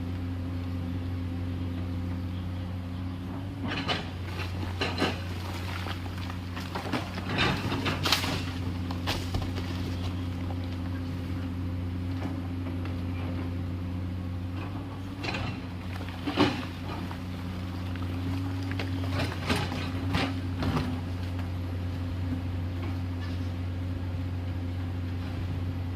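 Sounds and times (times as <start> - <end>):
excavator diesel engine running: 0.0 - 25.9
machine knocks and rattles: 3.6 - 10.6.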